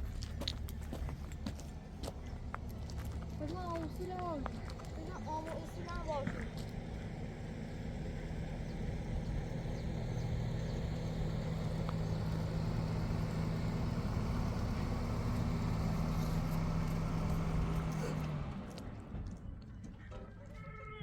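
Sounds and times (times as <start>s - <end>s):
car engine humming: 0.0s - 19.8s.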